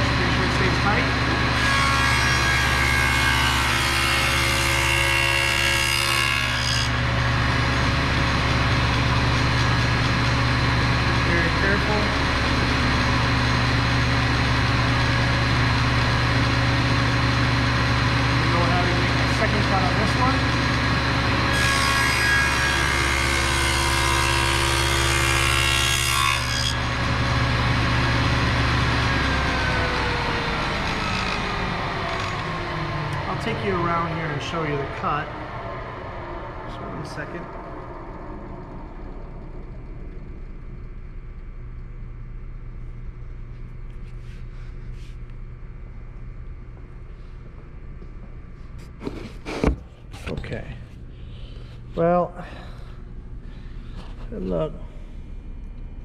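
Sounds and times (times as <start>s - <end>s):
table saw cutting wood: 0.0s - 35.3s, 48.9s - 50.3s.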